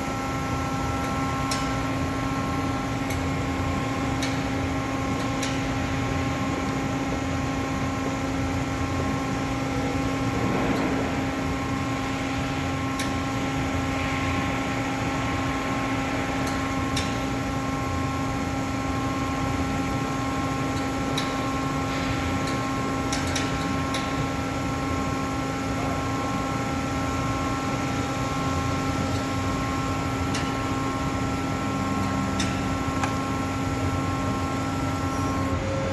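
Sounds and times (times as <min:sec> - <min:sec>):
machine hum with held tones: 0:00.0 - 0:35.9.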